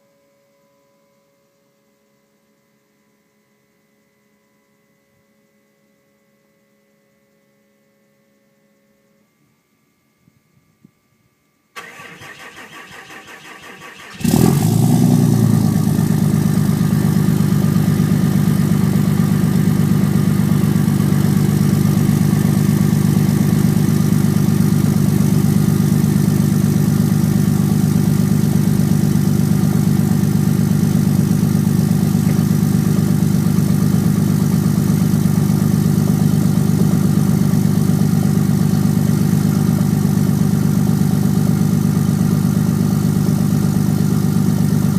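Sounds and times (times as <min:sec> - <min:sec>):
pickup engine idling: 0:14.2 - 0:44.9.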